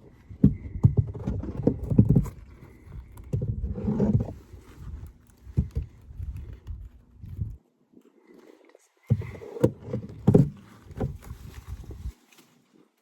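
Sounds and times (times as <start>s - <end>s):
wooden frames knocking: 0.3s - 2.4s, 9.1s - 11.3s
rustling scrape: 1.0s - 7.5s, 9.2s - 12.9s.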